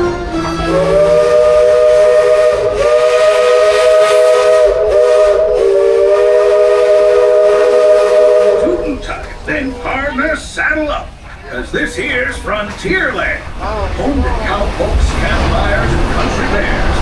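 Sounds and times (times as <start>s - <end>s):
steam locomotive whistle blasts: 0.0s - 9.4s.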